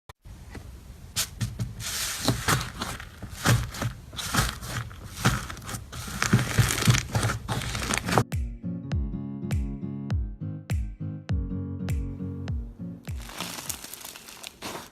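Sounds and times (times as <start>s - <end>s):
slime crackling and popping: 13.1s - 14.9s.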